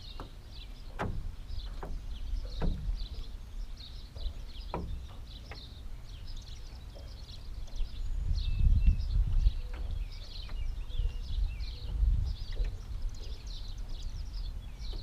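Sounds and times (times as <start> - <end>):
birds chirping: 0.0 - 15.0
wind rumble on microphone: 0.0 - 15.0
sharp knocks: 1.0 - 3.2, 4.7 - 5.6.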